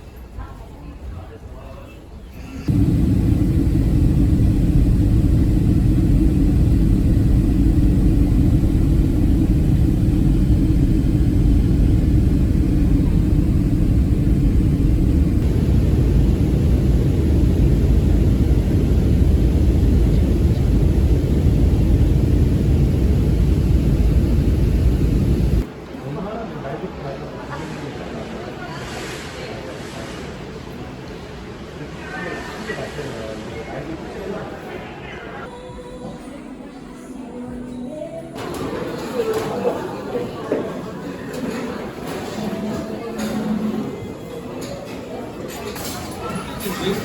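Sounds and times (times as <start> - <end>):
jet engines and airflow rumble: 2.2 - 25.7
low hum: 2.4 - 25.7.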